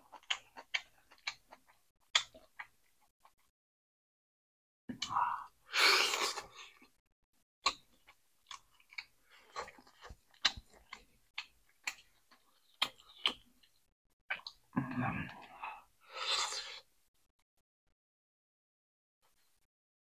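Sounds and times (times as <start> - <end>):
person chewing fish: 0.0 - 3.4, 7.6 - 14.6.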